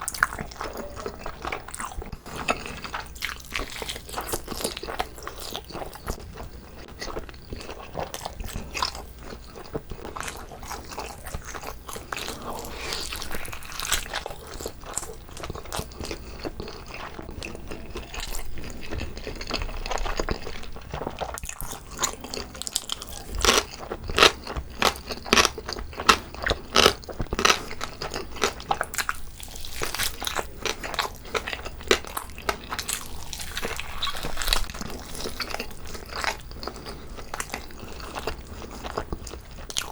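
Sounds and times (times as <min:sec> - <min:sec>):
person biting and chewing: 0:00.0 - 0:39.9.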